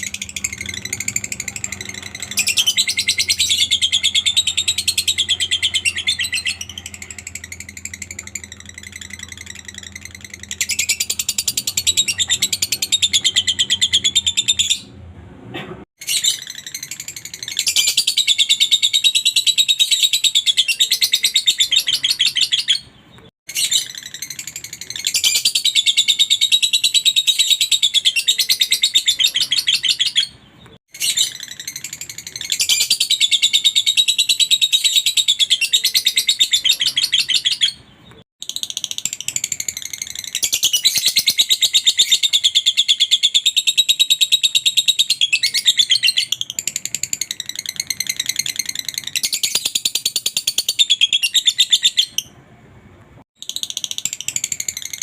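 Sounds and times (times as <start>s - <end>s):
bird chattering trills: 0.0s - 14.9s.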